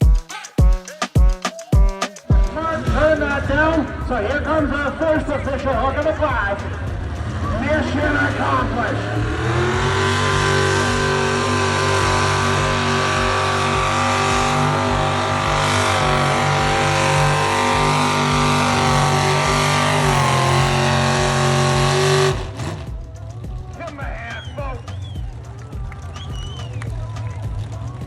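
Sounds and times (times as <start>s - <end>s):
engine running flat out: 2.5s - 23.7s.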